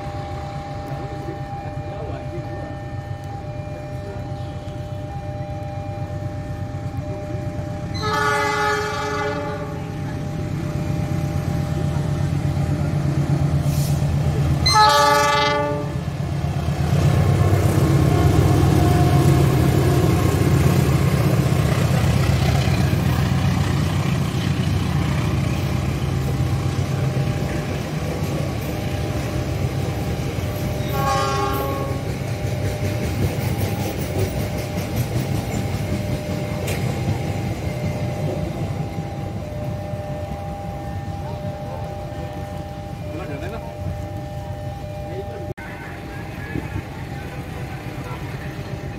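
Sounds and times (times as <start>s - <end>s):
train rumbling past: 0.0s - 48.9s
train horn blasts: 7.8s - 10.0s, 14.6s - 16.2s, 30.6s - 32.2s.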